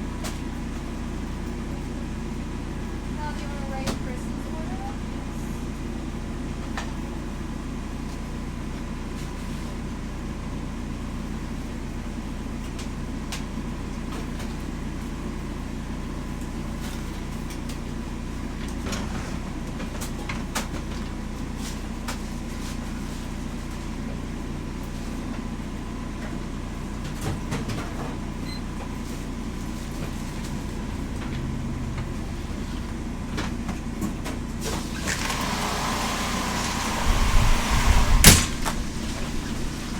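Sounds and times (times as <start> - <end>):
low mechanical hum: 0.0 - 39.9.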